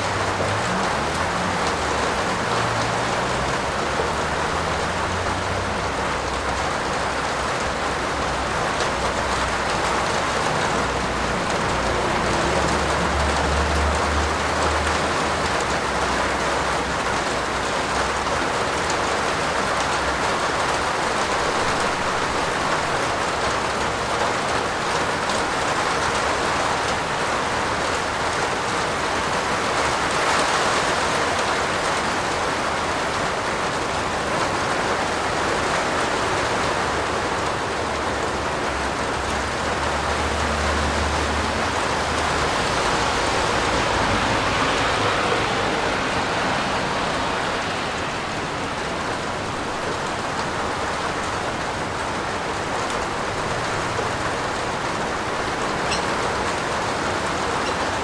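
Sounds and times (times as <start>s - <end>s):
heavy rain on a roof: 0.0s - 58.0s.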